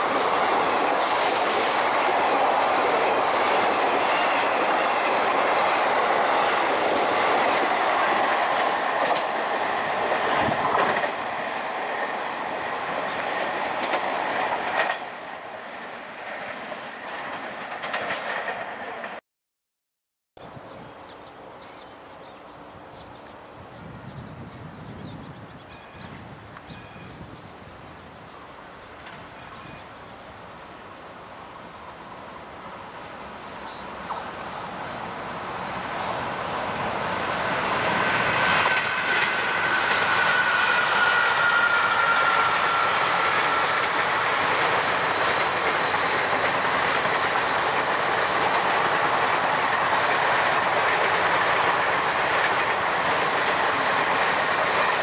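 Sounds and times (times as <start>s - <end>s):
clickety-clack of train coaches: 0.0s - 19.2s, 29.0s - 29.8s, 31.8s - 55.0s
train wheels rolling on rails: 0.0s - 19.2s, 22.3s - 55.0s.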